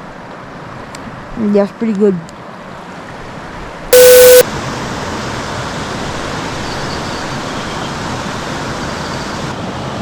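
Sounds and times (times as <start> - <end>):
loud electronic tone: 4.0 - 4.4.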